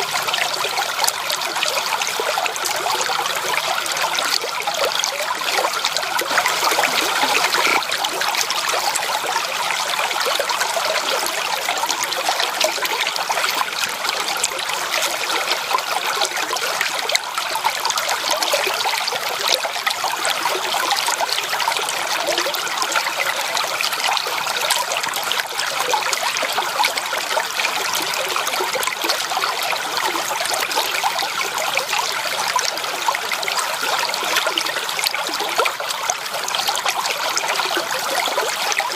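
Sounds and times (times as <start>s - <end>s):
stream water rushing: 1.4s - 14.2s.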